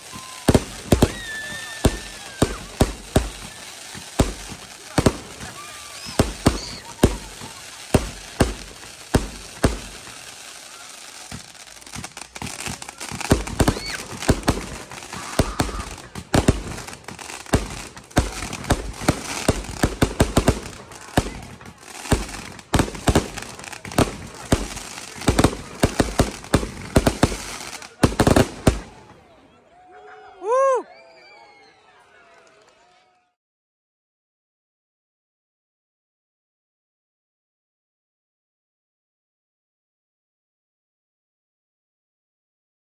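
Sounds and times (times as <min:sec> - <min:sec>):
fireworks bangs and crackles: 0:00.0 - 0:29.4.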